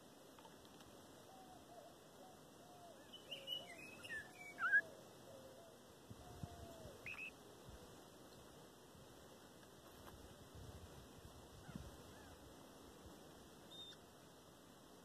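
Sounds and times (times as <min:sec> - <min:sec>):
songbird chirping: 0:00.2 - 0:08.6, 0:13.6 - 0:14.1.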